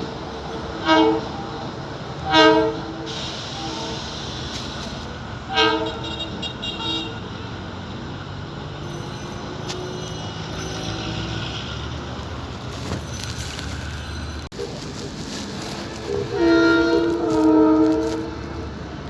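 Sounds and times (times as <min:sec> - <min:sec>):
train horn blasts: 0:00.6 - 0:04.1, 0:05.5 - 0:07.6, 0:16.0 - 0:18.8.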